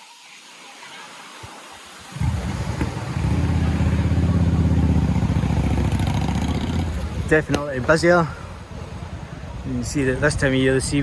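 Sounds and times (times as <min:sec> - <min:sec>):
vehicle engine running: 0:02.2 - 0:07.4.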